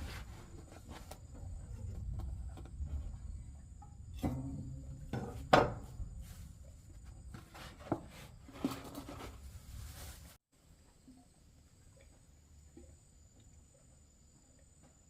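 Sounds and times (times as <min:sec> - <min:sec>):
objects knocking and clattering: 0:01.9 - 0:06.0.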